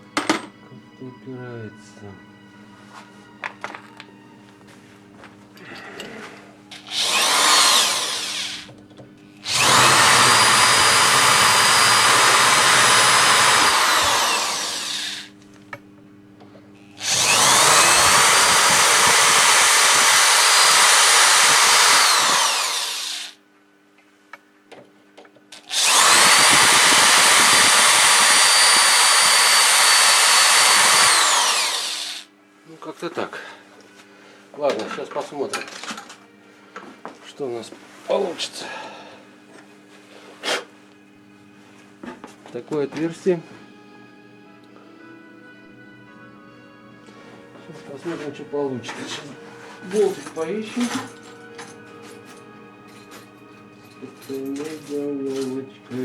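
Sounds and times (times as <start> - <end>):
electric drill boring: 6.7 - 8.7, 9.4 - 15.3, 16.9 - 23.4, 25.6 - 32.3.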